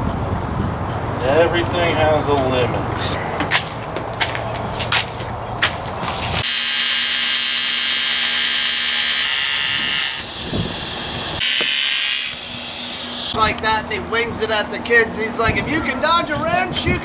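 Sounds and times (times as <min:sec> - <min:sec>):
small motor whirring: 0:06.4 - 0:13.4.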